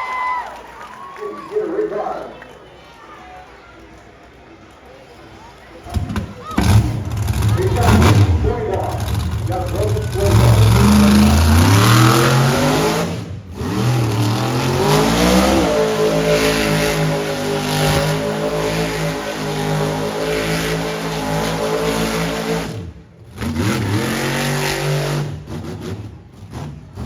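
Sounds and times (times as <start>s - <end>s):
monster truck engine revving: 5.8s - 27.0s.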